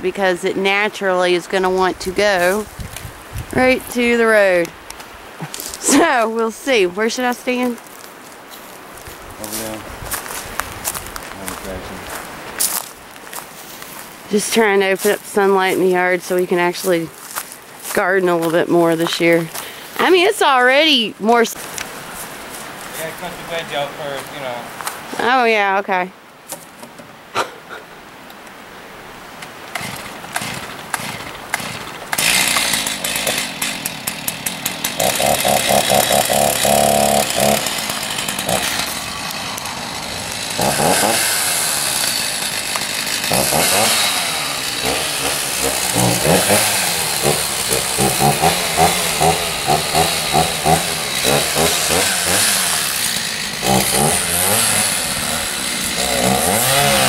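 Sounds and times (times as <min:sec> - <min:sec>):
chainsaw revving while cutting: 0:05.8 - 0:06.2, 0:29.7 - 0:57.0.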